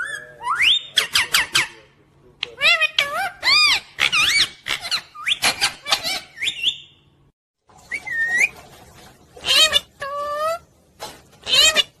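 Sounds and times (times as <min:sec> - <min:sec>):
parrot chirping: 0:00.0 - 0:07.1, 0:09.4 - 0:10.7, 0:11.4 - 0:12.0.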